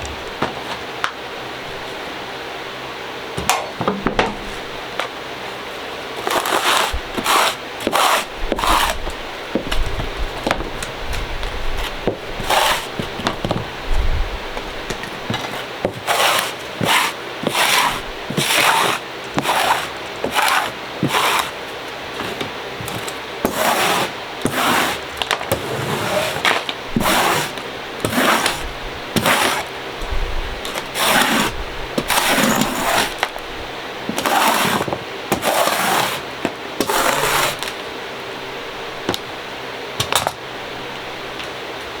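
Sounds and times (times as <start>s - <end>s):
tool crunching and scraping clay: 6.2s - 13.6s, 14.9s - 29.8s, 30.6s - 33.4s, 34.1s - 37.8s.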